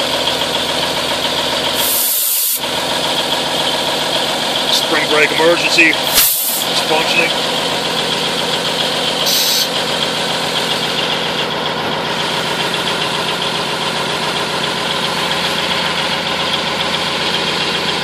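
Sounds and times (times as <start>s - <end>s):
diesel truck engine idling: 0.0s - 18.0s
air brake hiss: 1.8s - 2.6s, 6.1s - 6.7s, 9.2s - 9.7s.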